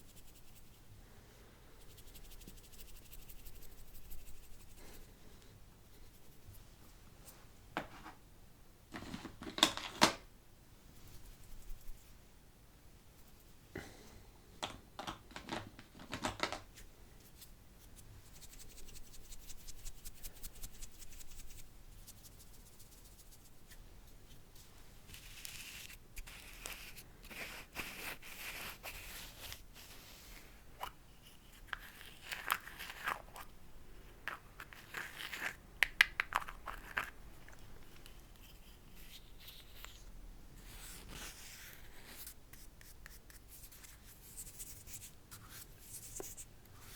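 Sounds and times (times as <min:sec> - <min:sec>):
soft hissing: 0:24.5 - 0:31.4.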